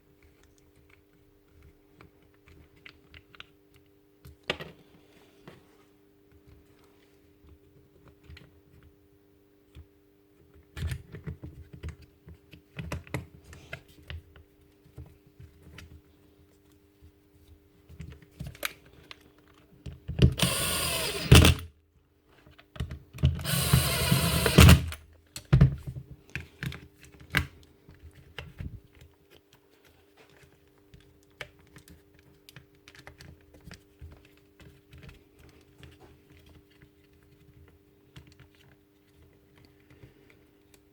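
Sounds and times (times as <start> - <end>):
jigsaw clicks and knocks: 20.2 - 21.7, 23.2 - 25.0
jigsaw motor running: 20.4 - 21.7, 23.4 - 25.0.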